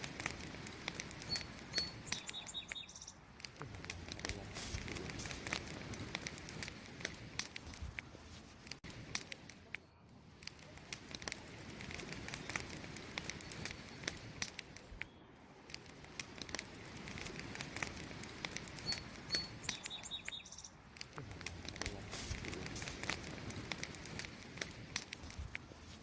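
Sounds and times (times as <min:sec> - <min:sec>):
wood campfire crackling: 0:00.0 - 0:26.0
high chirps: 0:00.7 - 0:06.3, 0:12.1 - 0:15.4, 0:16.6 - 0:24.8.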